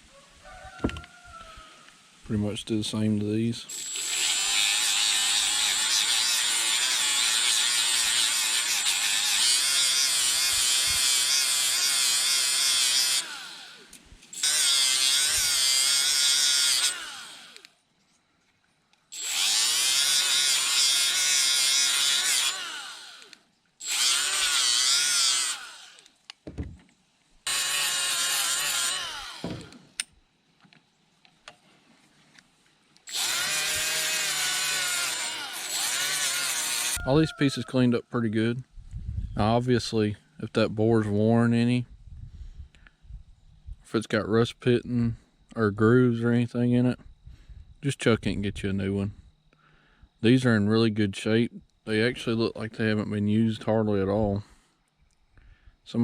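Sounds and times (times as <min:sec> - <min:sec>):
die grinder whining on metal: 0:03.7 - 0:17.7, 0:19.2 - 0:26.1, 0:27.5 - 0:29.8, 0:33.1 - 0:37.1.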